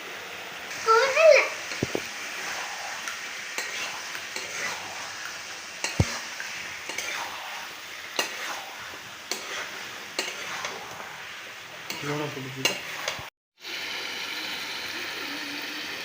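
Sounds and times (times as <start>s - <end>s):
chicken sizzling in a pan: 0.0s - 16.0s
spatula scraping a pan: 1.6s - 13.3s.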